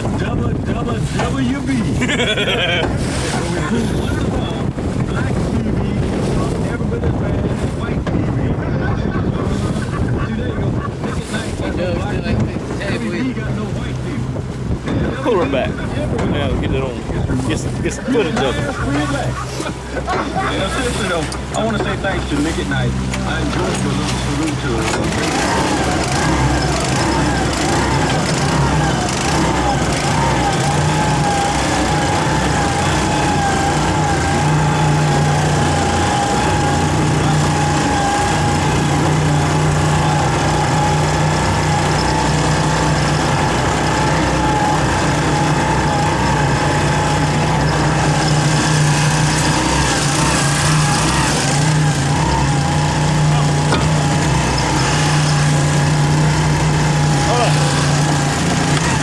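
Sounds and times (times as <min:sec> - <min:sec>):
boat engine drone: 0:00.0 - 0:59.0.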